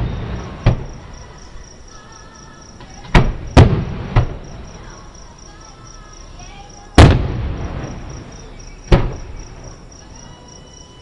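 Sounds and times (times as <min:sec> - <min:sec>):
distant firework shells bursting: 0:00.0 - 0:01.0, 0:02.8 - 0:04.7, 0:07.0 - 0:08.3.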